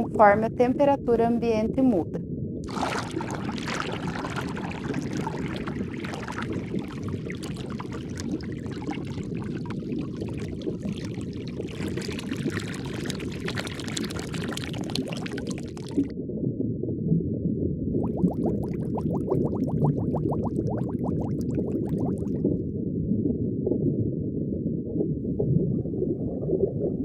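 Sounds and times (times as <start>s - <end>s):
low underwater rumble: 2.3s - 27.0s
water bubbling and fizzing: 2.6s - 16.1s, 18.0s - 22.6s.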